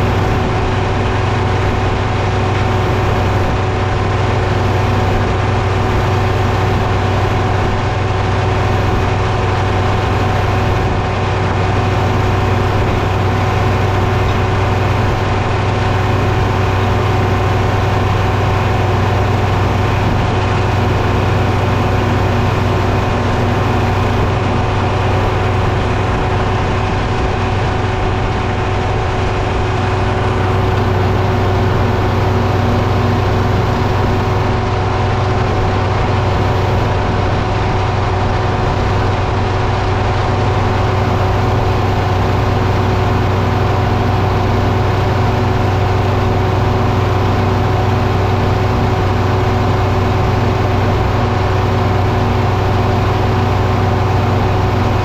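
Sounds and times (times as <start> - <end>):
diesel engine humming: 0.0 - 55.0.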